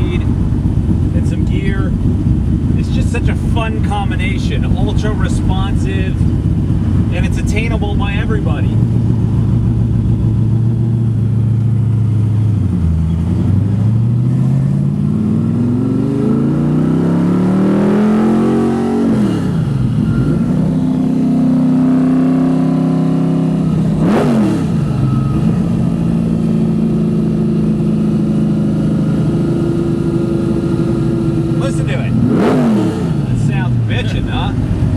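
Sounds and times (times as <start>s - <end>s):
car engine revving through gears: 12.5s - 34.9s.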